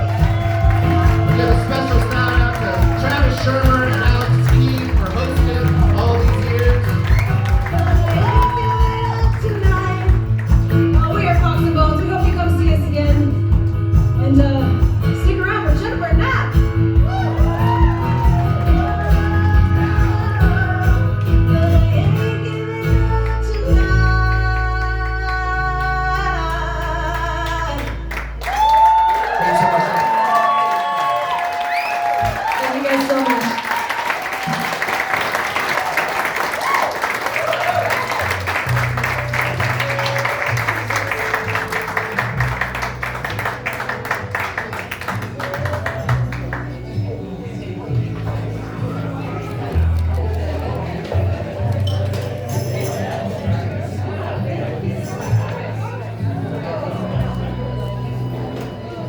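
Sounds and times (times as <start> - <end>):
scattered clapping: 0.0 - 12.9, 24.6 - 47.0
acoustic guitar: 0.0 - 29.8, 34.3 - 59.0
country band music: 0.0 - 30.6, 34.3 - 59.0
crowd noise: 0.0 - 59.0.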